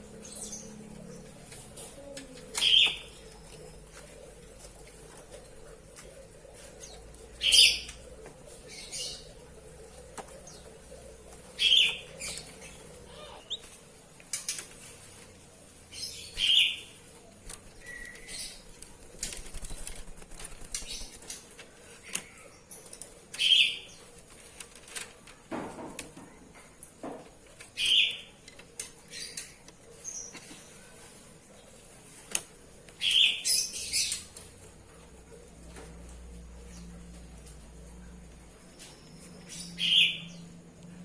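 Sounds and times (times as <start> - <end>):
bird chirps and clicks: 6.8 - 8.5, 17.5 - 25.4, 27.6 - 30.5, 32.3 - 34.7.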